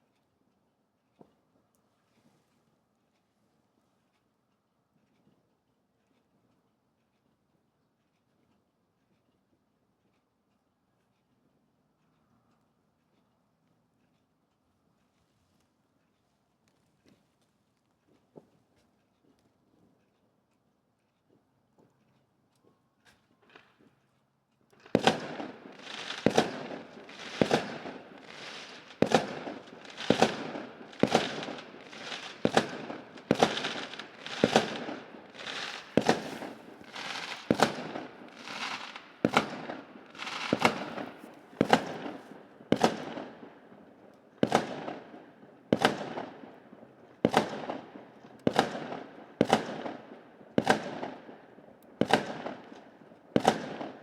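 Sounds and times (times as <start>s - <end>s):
fireworks bangs: 24.8s - 43.5s, 44.4s - 46.3s.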